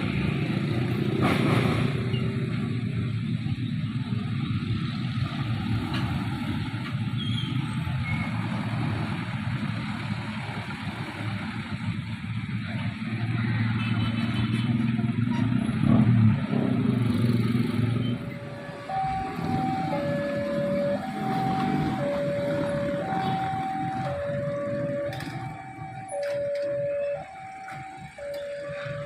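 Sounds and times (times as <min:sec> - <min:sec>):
passing vehicle engines rumbling: 0:00.0 - 0:29.0
two-tone warning signal: 0:18.0 - 0:29.0.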